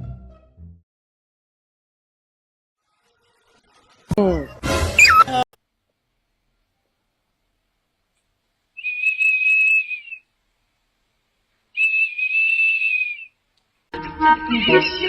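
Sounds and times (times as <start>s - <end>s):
high-pitched whistle tones: 5.0s - 5.3s, 8.8s - 10.2s, 11.8s - 13.3s
several held tones: 5.0s - 5.4s.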